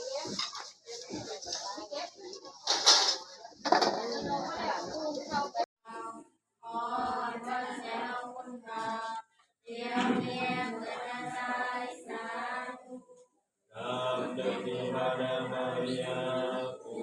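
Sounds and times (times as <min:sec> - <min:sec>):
group singing a hymn: 0:05.9 - 0:17.0.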